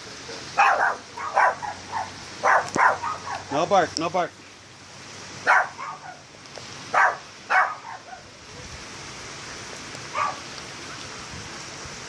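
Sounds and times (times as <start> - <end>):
rain hissing: 0.0 - 12.0
dog barking: 0.3 - 3.5, 5.4 - 6.2, 6.9 - 8.3, 10.1 - 10.4.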